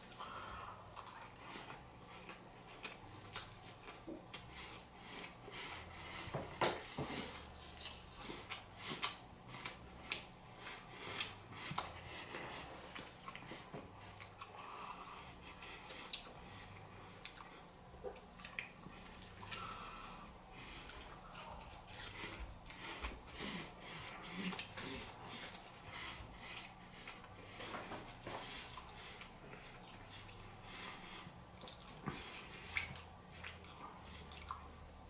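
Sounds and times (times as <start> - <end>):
person chewing food: 0.0 - 35.0
mouth clicks and wet smacks: 17.2 - 19.6, 31.4 - 34.7.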